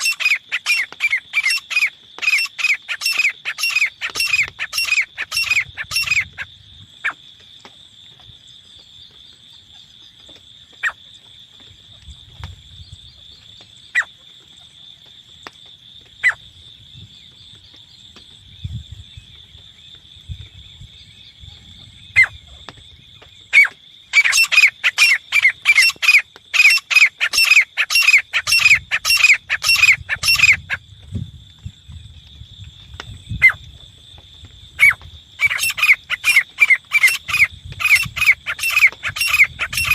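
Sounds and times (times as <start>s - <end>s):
francolin calling: 0.0s - 7.2s, 23.5s - 30.8s, 34.8s - 39.9s.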